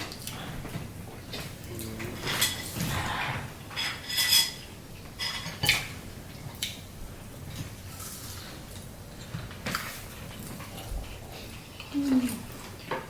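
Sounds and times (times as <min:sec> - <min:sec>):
cutlery and dishes clinking: 0:01.4 - 0:06.0.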